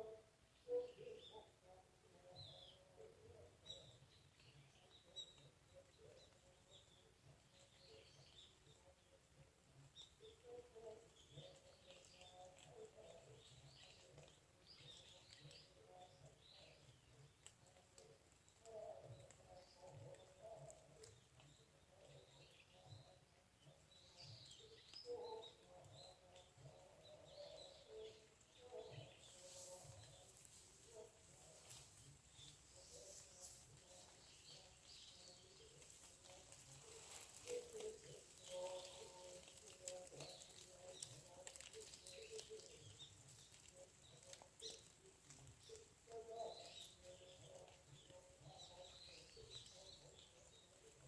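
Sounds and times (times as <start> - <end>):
faint birds chirping: 0.0 - 51.0.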